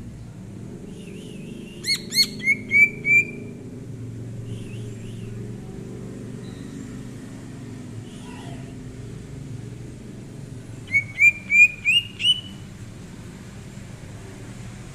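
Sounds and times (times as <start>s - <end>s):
low steady rumble: 0.0s - 14.9s
bird whistling rising notes: 1.2s - 3.5s, 10.9s - 12.6s
faint bird chirps: 4.4s - 5.4s, 6.4s - 7.0s, 10.9s - 12.6s.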